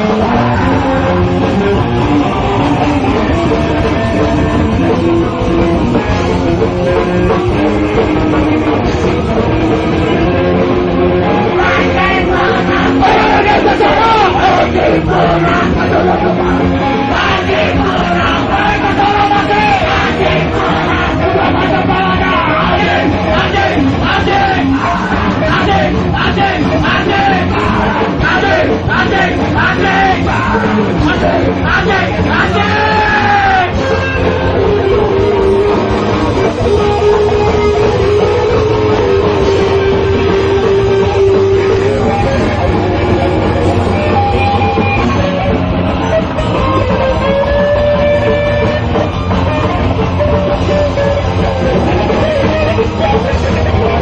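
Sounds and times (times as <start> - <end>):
distorted electric guitars: 0.0 - 54.0
drumming: 0.0 - 54.0
vocalist shouting: 11.6 - 16.4, 17.0 - 33.8.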